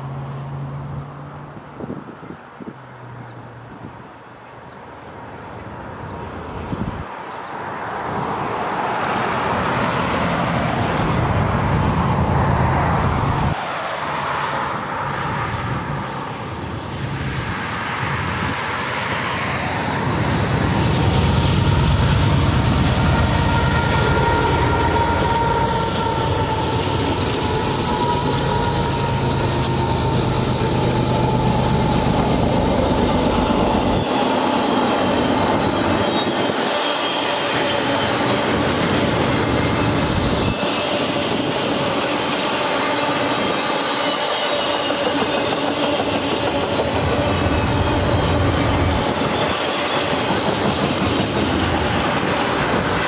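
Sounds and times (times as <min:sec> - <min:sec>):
diesel locomotives passing: 0:00.0 - 0:53.0
high wheel squeal: 0:18.8 - 0:53.0.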